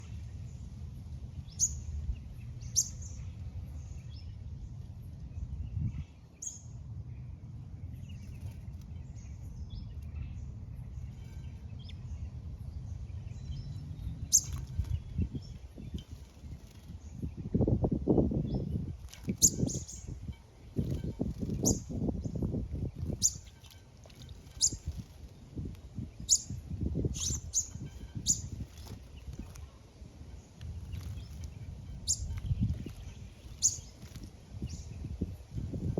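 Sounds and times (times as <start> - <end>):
small birds chirping: 0.0 - 6.8, 7.8 - 17.6, 18.4 - 35.9
steady low rumble: 24.2 - 35.9.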